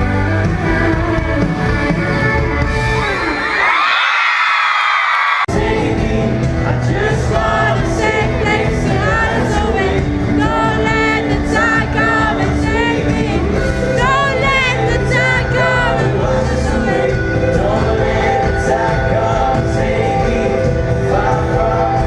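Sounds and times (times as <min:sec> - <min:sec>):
band playing drums and bass: 0:00.0 - 0:03.6, 0:05.5 - 0:22.0
crowd screaming: 0:02.0 - 0:05.6
person singing: 0:05.5 - 0:22.0.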